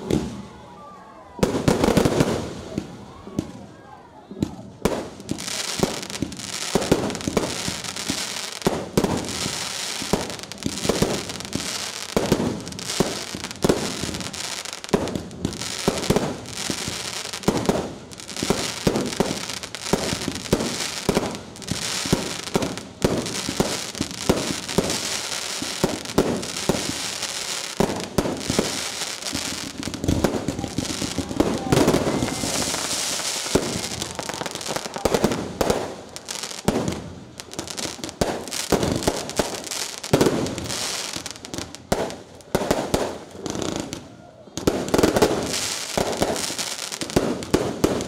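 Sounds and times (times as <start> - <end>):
fireworks bangs and crackling: 0.0 - 0.6, 1.3 - 48.0.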